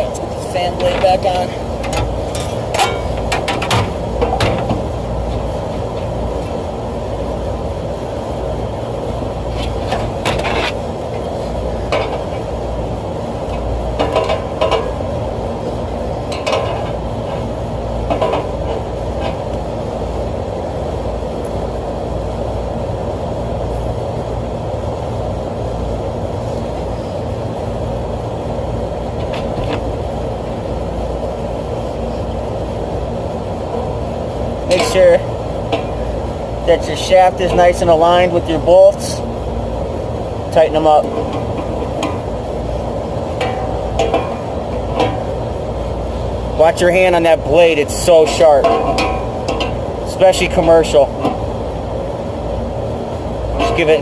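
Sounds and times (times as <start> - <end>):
steady mechanical background noise: 0.0 - 54.0
metal clinks and knocks: 43.3 - 45.4, 48.3 - 49.9.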